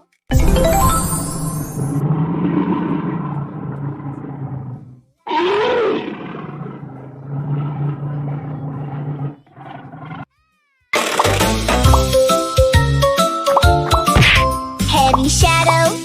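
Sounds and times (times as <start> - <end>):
animal roar and growl: 1.9 - 10.3.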